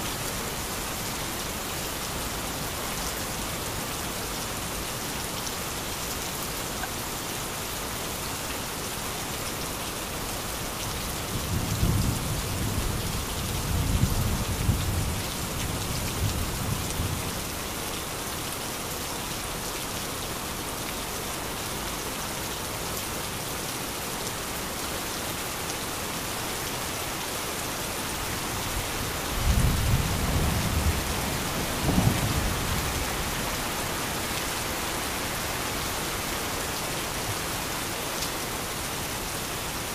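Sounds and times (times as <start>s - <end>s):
heavy rain: 0.0s - 39.9s
rolling thunder: 29.4s - 33.0s.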